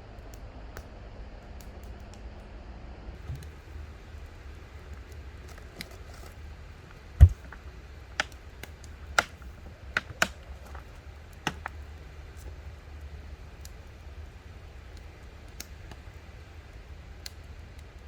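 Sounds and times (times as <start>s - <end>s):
objects clicking and tapping: 10.0s - 11.8s.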